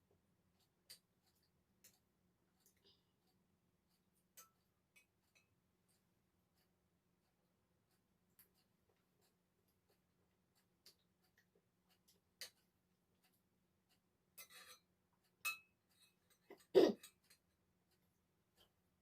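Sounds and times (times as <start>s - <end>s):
utensils clinking while eating: 14.3s - 18.7s.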